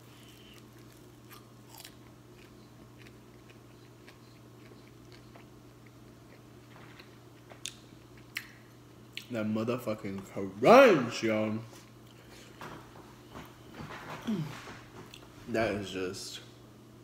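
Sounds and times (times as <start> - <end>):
chewing crispy food: 0.0 - 9.3.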